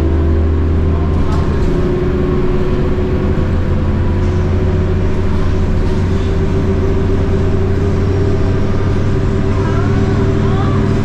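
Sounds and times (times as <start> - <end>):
bus diesel engine droning: 0.0 - 11.0.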